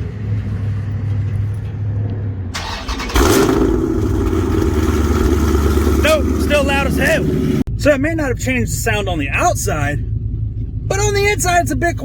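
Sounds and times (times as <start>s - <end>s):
engine idling: 2.6s - 12.0s.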